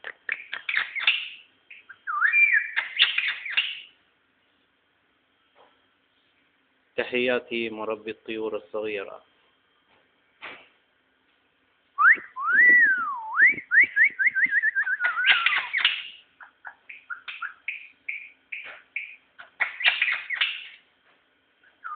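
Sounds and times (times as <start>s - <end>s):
songbird singing whistled notes: 0.3s - 4.0s, 12.0s - 20.8s, 21.6s - 21.9s.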